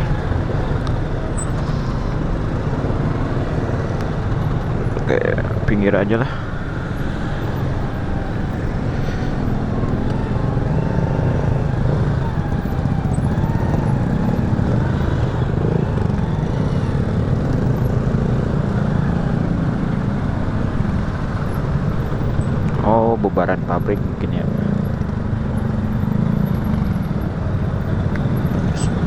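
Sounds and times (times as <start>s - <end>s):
traffic hum: 0.0s - 29.0s
motorcycle engine running: 24.5s - 29.0s.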